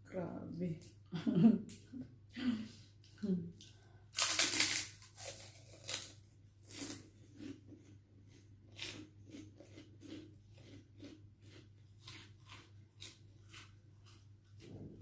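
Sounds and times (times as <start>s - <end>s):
person chewing food: 3.0s - 15.0s.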